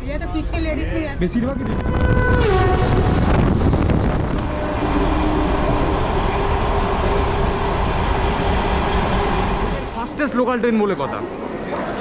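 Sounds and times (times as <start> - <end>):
train wheels rumbling on rail: 1.3 - 10.6.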